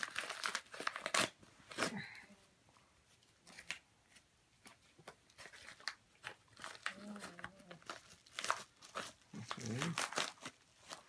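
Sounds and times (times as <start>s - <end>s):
packaging rustling and clicking: 4.6s - 11.0s.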